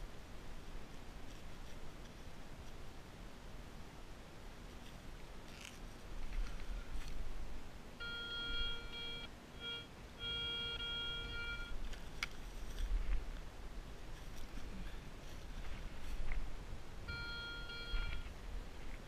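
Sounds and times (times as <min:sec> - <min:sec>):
metal detector tone: 0:08.0 - 0:11.8, 0:17.1 - 0:18.4.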